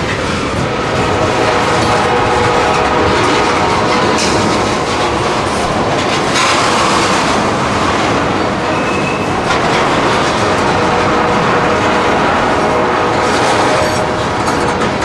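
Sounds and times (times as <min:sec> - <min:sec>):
train wheels clickety-clack: 0:00.0 - 0:15.0
high wheel squeal: 0:08.6 - 0:09.4.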